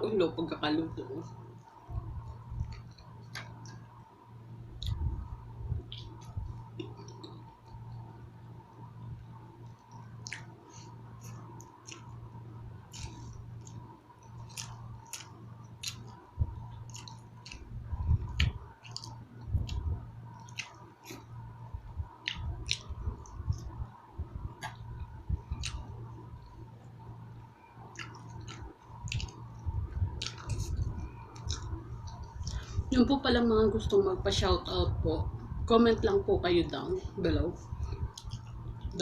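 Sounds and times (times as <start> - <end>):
low steady hum: 0.0 - 39.0
person chewing with mouth smacks: 4.8 - 5.2, 9.7 - 12.2, 12.8 - 21.4, 22.2 - 23.8, 24.5 - 26.2, 27.8 - 32.8, 37.8 - 39.0.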